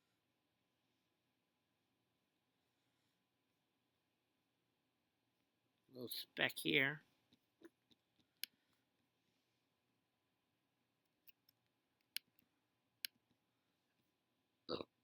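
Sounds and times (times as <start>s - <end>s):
computer mouse clicks: 11.1s - 13.2s.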